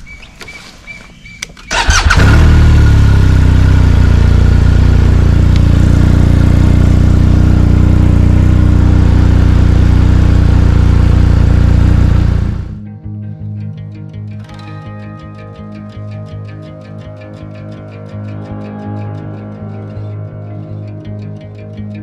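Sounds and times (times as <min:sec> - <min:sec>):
starter cranking: 0:01.7 - 0:02.6
motorcycle engine idling: 0:01.7 - 0:12.8.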